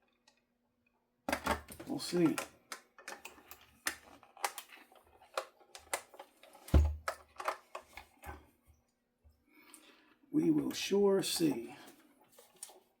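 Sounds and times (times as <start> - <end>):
loud thud on workbench: 6.7 - 7.0.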